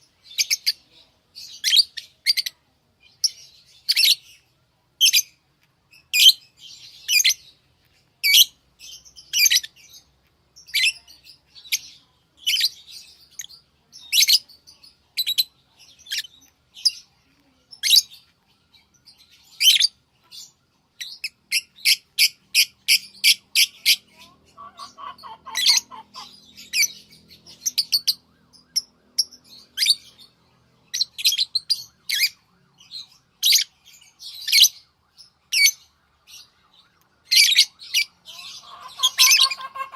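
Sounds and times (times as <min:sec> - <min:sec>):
lovebirds chirping: 0:00.0 - 0:39.9
low-pitched bird call: 0:23.8 - 0:27.0, 0:37.4 - 0:39.9.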